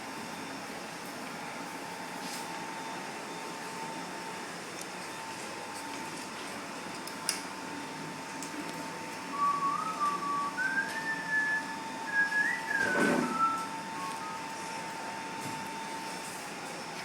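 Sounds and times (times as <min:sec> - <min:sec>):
person whistling a tune: 0:09.3 - 0:14.6.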